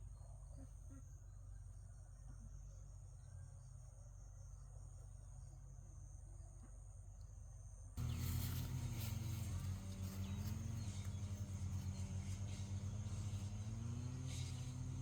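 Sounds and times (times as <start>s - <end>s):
small engine running: 8.0s - 15.0s.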